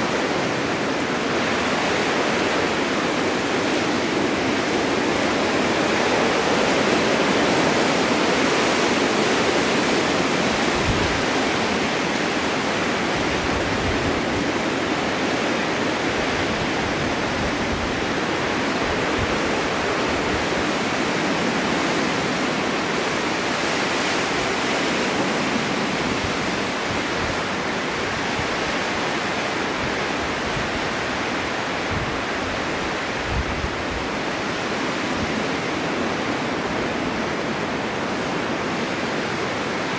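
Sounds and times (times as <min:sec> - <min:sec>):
strong wind blowing: 0:00.0 - 0:39.9
low gusty rumbles: 0:10.5 - 0:22.4.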